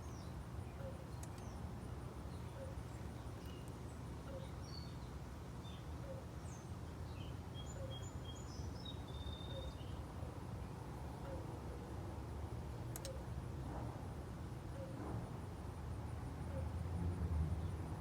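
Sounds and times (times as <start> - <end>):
faint birds chirping: 0.0 - 11.9.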